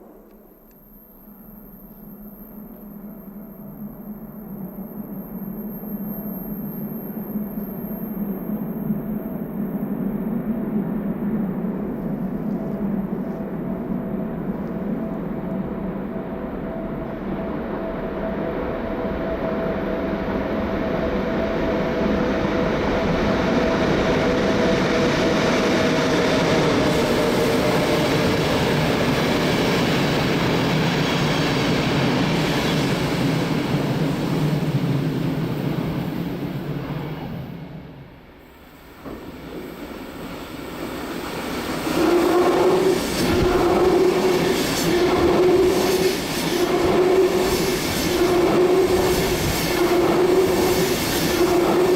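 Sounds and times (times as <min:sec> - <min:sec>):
train rail rumble: 0:08.3 - 0:51.9.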